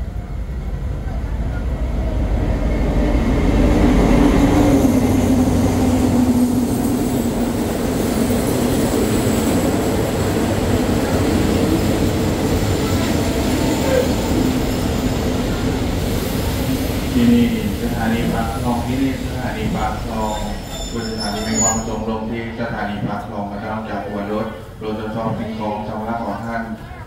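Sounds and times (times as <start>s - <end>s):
locomotive engine hum: 0.0s - 20.9s
train carriages rumbling on rails: 0.0s - 23.5s.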